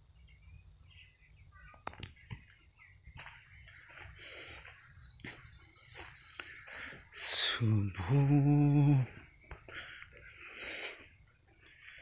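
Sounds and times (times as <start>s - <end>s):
faint birds chirping: 0.0s - 12.0s
sharp clicks: 1.8s - 2.3s.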